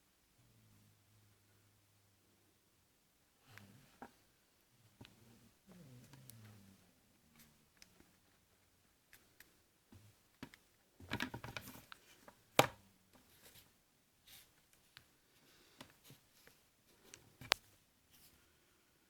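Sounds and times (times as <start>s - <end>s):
handling clicks and taps: 10.4s - 13.2s.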